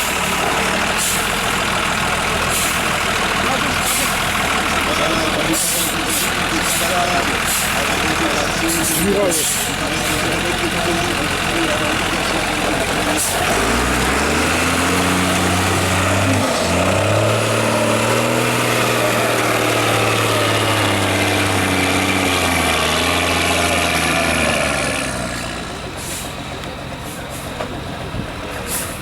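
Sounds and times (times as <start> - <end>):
diesel truck engine revving: 0.0 - 29.0
short hisses: 26.0 - 26.4.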